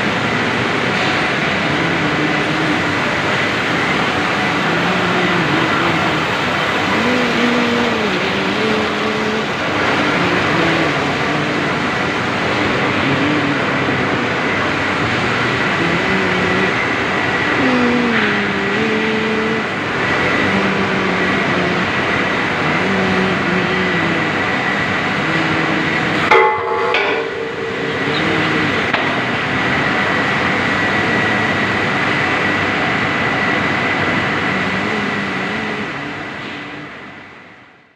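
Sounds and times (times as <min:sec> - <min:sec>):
thin high whine: 0:00.9 - 0:32.5
machine mechanical din: 0:25.1 - 0:31.0
tune playing: 0:25.2 - 0:29.6.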